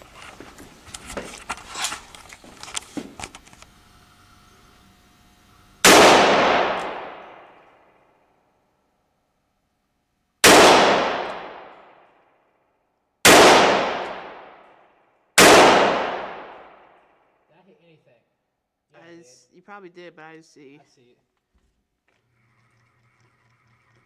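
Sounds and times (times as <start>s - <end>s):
handgun shots echoing indoors: 5.8s - 8.1s, 10.4s - 12.3s, 13.2s - 17.3s.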